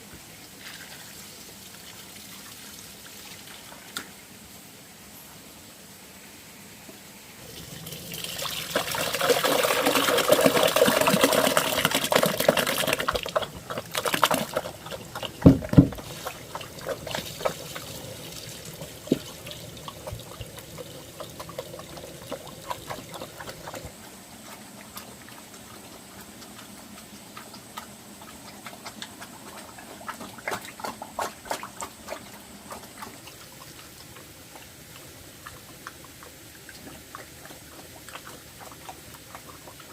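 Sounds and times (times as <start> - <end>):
water pouring: 7.4 - 24.0.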